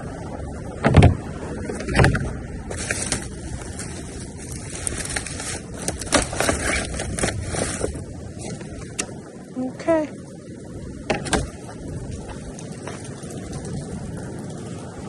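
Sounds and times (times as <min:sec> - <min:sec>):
rustling trash: 0:00.9 - 0:09.0.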